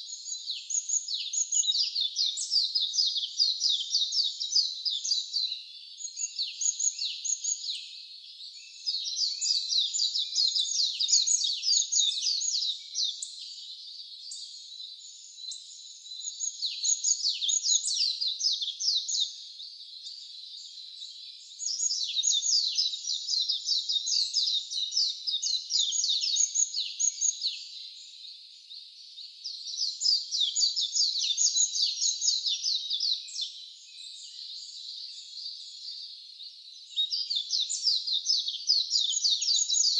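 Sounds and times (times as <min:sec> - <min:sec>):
songbird singing rapid high chirps: 0:00.0 - 0:39.9.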